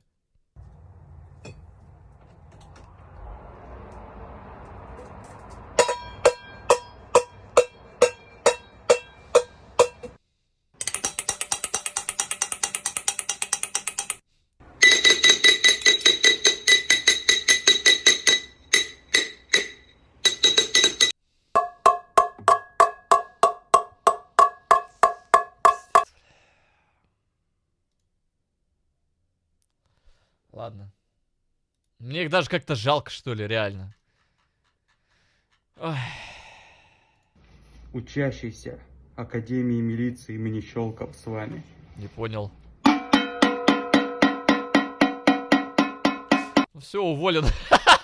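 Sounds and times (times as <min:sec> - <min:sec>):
saucepans beaten like drums: 0:42.9 - 0:46.7.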